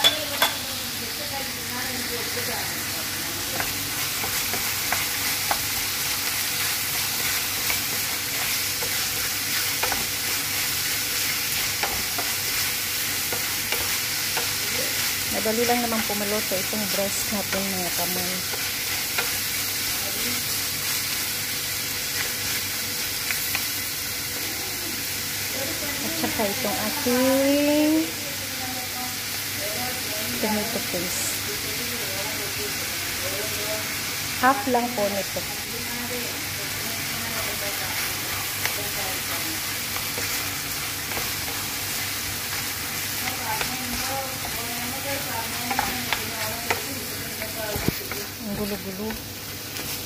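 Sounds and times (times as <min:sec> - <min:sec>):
chicken and peppers sizzling in pan: 0:00.0 - 0:50.0
wooden spoon clicking on pan: 0:09.6 - 0:10.4, 0:45.6 - 0:49.2.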